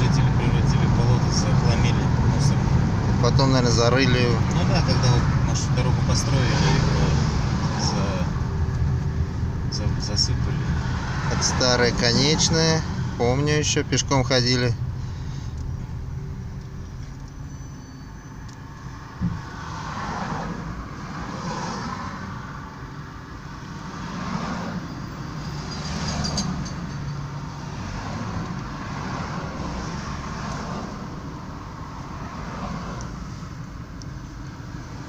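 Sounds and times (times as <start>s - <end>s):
car engine and road noise: 0.0s - 35.0s.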